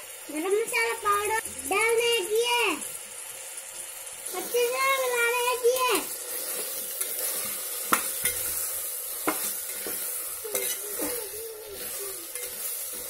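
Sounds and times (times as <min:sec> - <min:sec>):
chicken frying in oil: 0:00.0 - 0:13.0
metal spoon scraping pot: 0:06.4 - 0:13.0.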